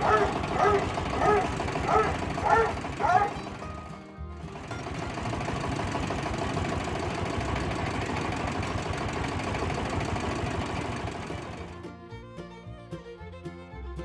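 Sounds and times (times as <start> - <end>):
violin music: 0.0 - 5.1, 11.6 - 14.0
small motor rattling: 0.0 - 11.9.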